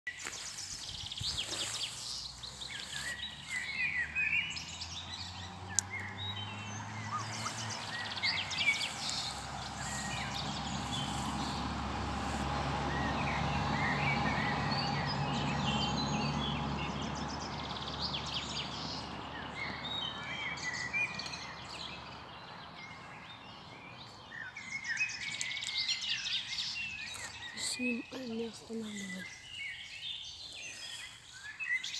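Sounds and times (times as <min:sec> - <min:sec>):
small birds chirping and singing: 0:00.1 - 0:31.9
low rumbling background noise: 0:00.7 - 0:20.2.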